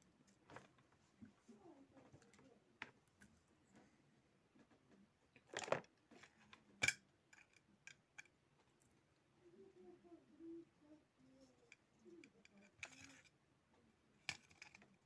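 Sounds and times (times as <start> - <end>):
plastic scrape: 12.5 - 13.3
plastic parts clicking: 14.2 - 15.0.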